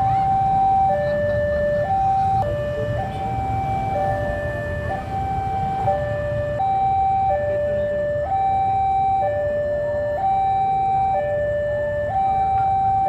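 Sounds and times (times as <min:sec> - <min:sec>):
level crossing two-tone alarm: 0:00.0 - 0:13.0.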